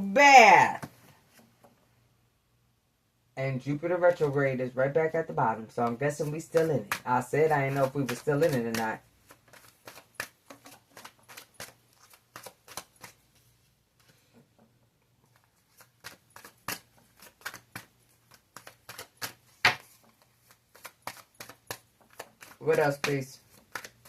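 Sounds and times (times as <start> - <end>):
cards being shuffled by hand: 5.8 - 14.3, 15.2 - 24.0.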